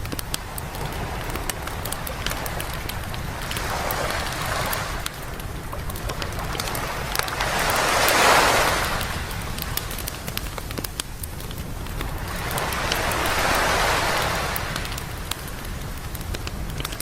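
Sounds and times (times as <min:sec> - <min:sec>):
campfire crackling and popping: 0:00.0 - 0:17.0
wave breaking on beach: 0:00.2 - 0:10.8, 0:12.0 - 0:16.2.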